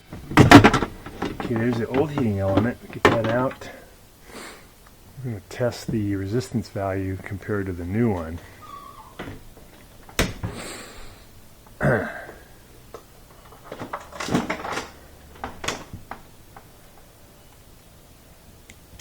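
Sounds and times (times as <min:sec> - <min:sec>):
light clicks and knocks: 0:00.0 - 0:04.0, 0:07.3 - 0:17.6
scraping squeak: 0:08.4 - 0:09.4.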